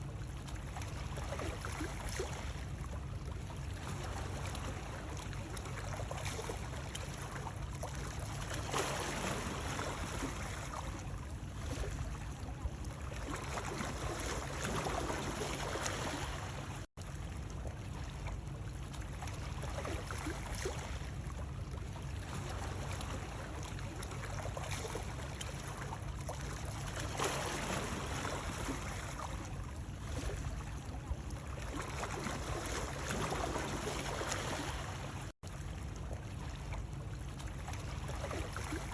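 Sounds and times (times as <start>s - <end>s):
ocean waves washing in: 3.7s - 16.9s.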